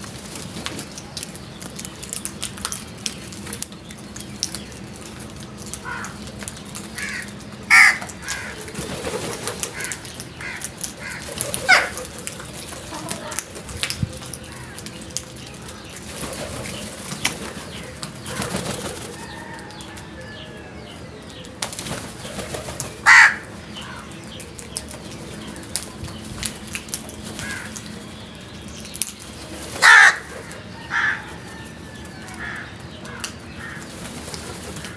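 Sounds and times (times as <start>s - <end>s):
crows cawing: 5.8s - 6.3s, 7.0s - 8.8s, 9.7s - 12.0s, 23.0s - 24.2s, 27.4s - 27.9s, 29.8s - 33.9s.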